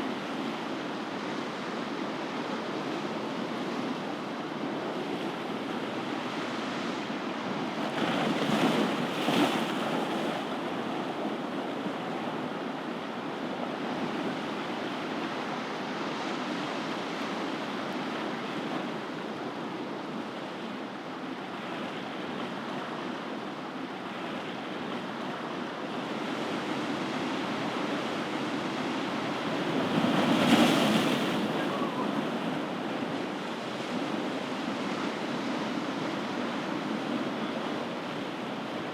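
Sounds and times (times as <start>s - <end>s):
ocean waves washing: 26.8s - 38.9s.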